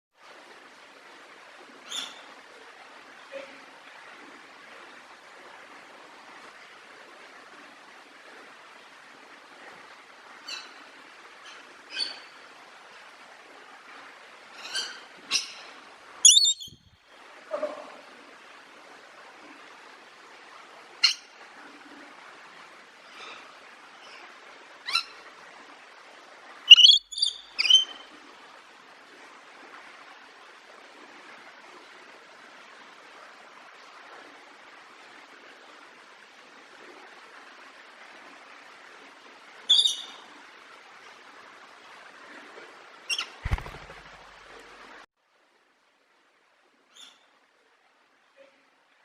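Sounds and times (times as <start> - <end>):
parrot squawking: 16.2 - 16.8, 26.7 - 28.0.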